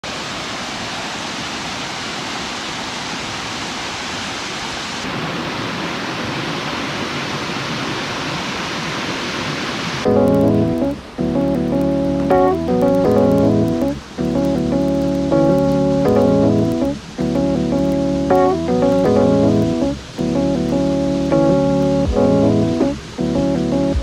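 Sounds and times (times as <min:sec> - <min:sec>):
waterfall rushing: 0:00.0 - 0:24.0
music with plucked notes: 0:10.1 - 0:24.0.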